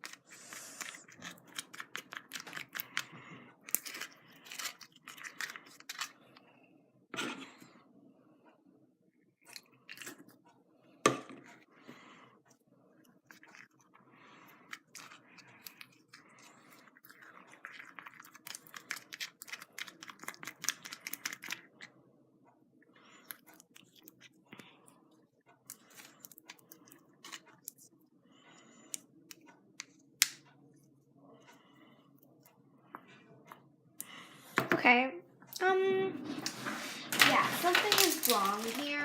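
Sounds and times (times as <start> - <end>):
slime clicking and squelching: 0.9 - 6.1, 14.6 - 21.8.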